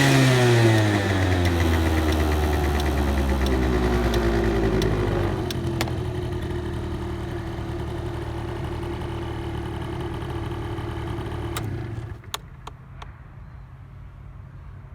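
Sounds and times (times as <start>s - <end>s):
scooter engine idling: 0.0s - 12.7s
sharp clicks: 0.7s - 6.0s, 11.5s - 13.1s.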